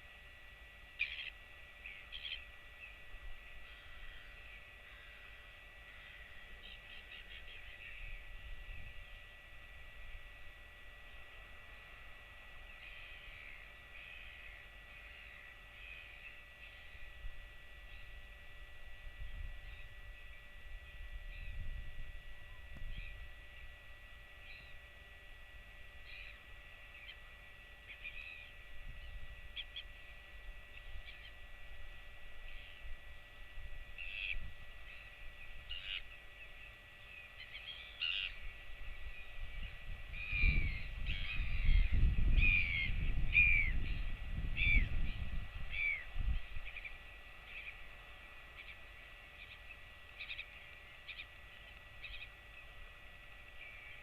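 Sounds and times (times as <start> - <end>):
short high bird calls: 3.6 - 8.2, 34.0 - 47.8, 49.4 - 51.4.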